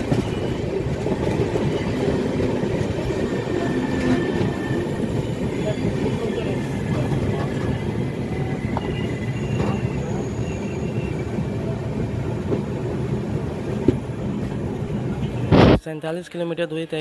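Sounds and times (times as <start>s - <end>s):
train coaches rumbling over rails: 0.0s - 15.6s
faint wheel squeals: 8.3s - 11.5s.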